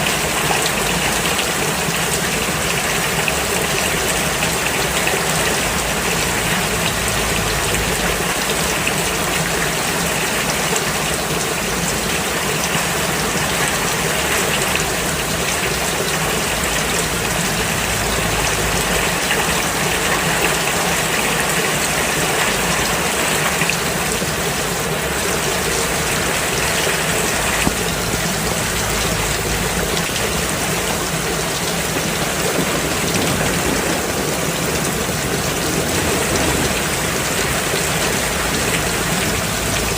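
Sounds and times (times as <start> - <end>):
rain falling on a road: 0.0 - 39.9.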